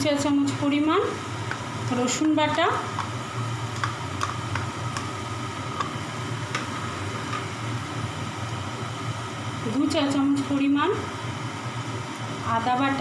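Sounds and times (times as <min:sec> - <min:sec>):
steady low hum: 0:00.0 - 0:13.0
paste frying in a pan: 0:00.4 - 0:09.7
spatula stirring and tapping pan: 0:01.4 - 0:07.5.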